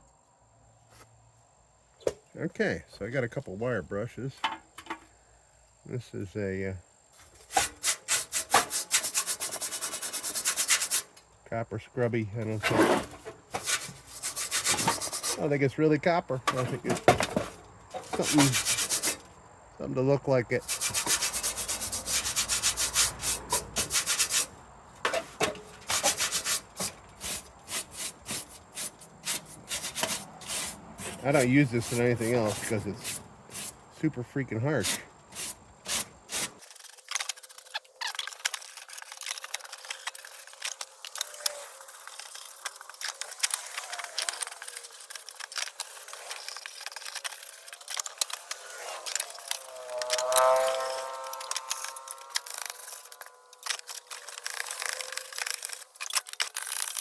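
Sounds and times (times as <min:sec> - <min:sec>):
scrubbing sheet metal: 0:07.4 - 0:11.1, 0:12.4 - 0:15.6, 0:16.5 - 0:19.2, 0:20.6 - 0:33.8, 0:34.8 - 0:57.0.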